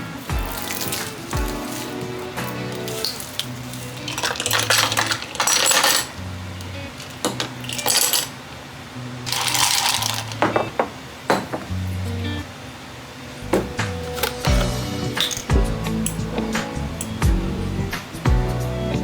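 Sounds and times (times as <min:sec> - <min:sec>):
kitchenware clinking and rattling: 0:00.0 - 0:08.6, 0:09.2 - 0:12.0, 0:13.4 - 0:17.4
background music with bass line: 0:13.4 - 0:19.0.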